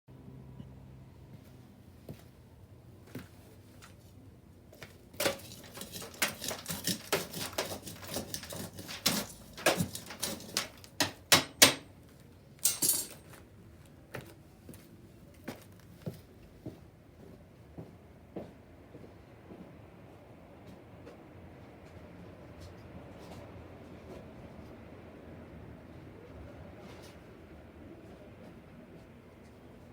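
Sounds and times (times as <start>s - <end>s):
bonfire wood crackling and popping: 4.7s - 11.9s.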